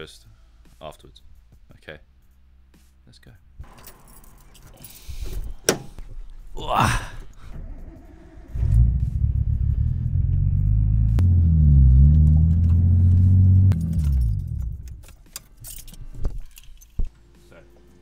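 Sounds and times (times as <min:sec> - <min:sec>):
keys jangling: 0:03.6 - 0:06.0, 0:13.7 - 0:17.0
car engine starting and running: 0:05.2 - 0:15.6.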